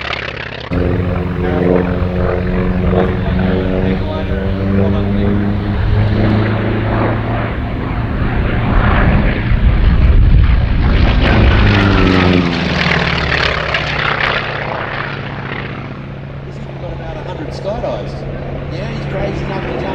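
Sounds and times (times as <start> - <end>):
propeller aircraft engine passing: 0.7 - 16.8.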